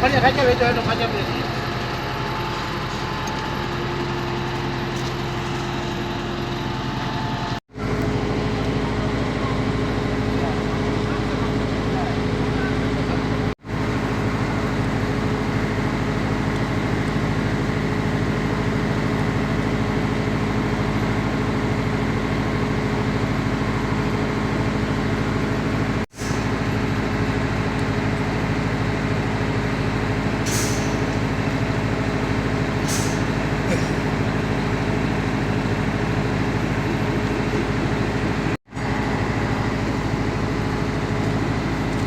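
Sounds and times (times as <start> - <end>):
large engine droning: 0.0 - 42.0
burst of hiss: 30.5 - 31.1.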